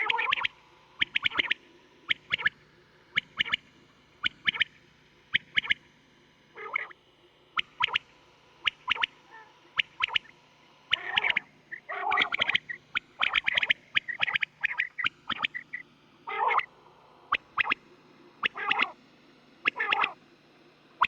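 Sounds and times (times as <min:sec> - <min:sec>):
quail calling: 0:10.9 - 0:16.7, 0:18.4 - 0:19.0, 0:19.7 - 0:20.2.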